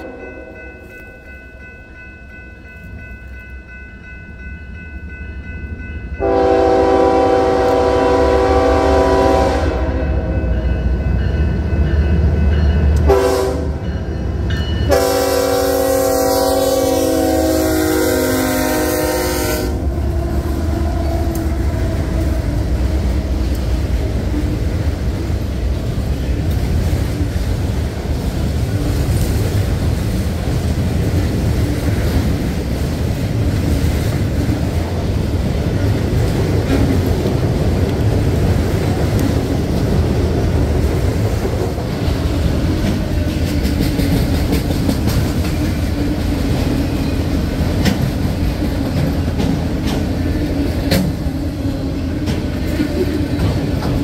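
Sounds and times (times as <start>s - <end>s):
train horn: 0.0s - 0.6s, 6.2s - 10.6s, 13.0s - 14.0s, 14.8s - 23.6s
train rumbling past: 0.0s - 54.0s.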